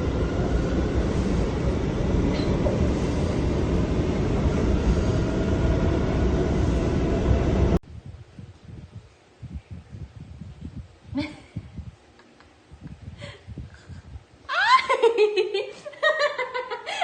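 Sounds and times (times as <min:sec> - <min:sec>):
loud low rumbling: 0:00.0 - 0:08.9.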